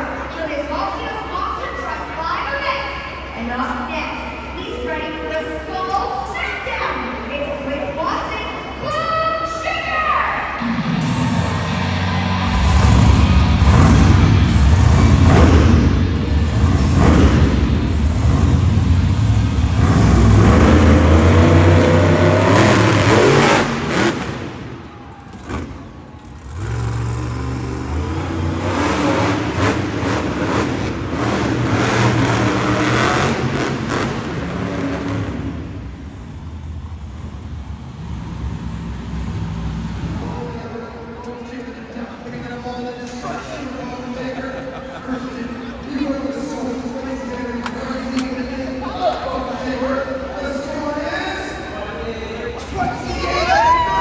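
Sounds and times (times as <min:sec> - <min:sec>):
monster truck engine revving: 0:10.6 - 0:40.6.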